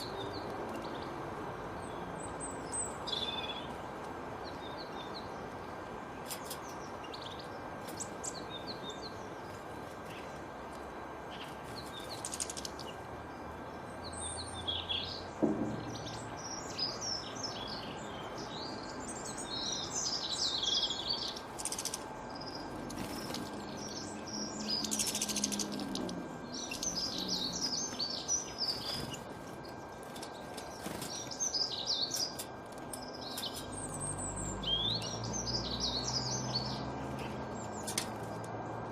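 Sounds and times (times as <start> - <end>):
songbirds chirping: 0.0 - 38.9
sharp knock: 15.4 - 16.1.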